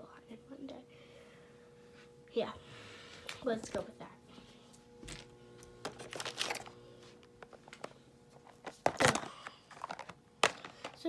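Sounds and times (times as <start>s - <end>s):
faint steady hum: 0.0s - 11.0s
small objects clicking and rustling: 5.8s - 6.8s, 7.4s - 11.0s.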